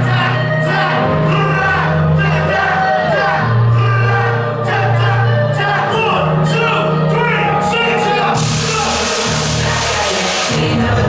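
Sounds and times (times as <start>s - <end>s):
hip-hop music: 0.0s - 11.0s
vocals: 0.0s - 11.0s
deep bass line: 8.4s - 11.0s.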